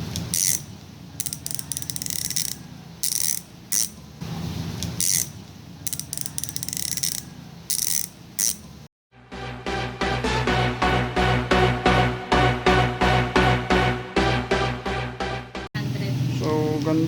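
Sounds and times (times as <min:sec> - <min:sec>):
bicycle hub ratcheting clicks: 0:00.1 - 0:04.0, 0:05.0 - 0:08.7.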